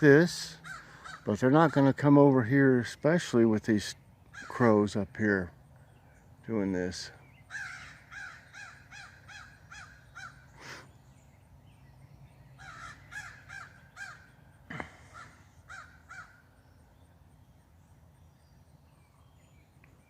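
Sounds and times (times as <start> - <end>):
crows cawing: 0.6 - 1.4, 4.3 - 4.6, 7.5 - 10.8, 12.6 - 16.5.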